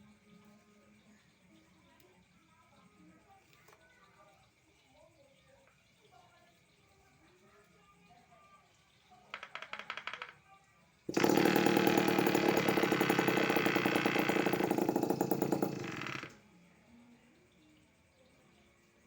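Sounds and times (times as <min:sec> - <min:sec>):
small two-stroke engine running: 0:11.1 - 0:16.4.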